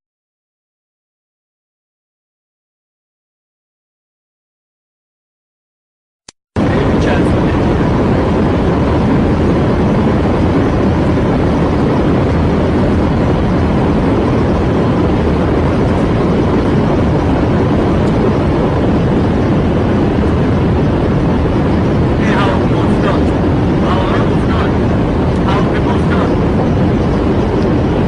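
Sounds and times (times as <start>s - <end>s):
aircraft engine roar: 6.6s - 28.0s.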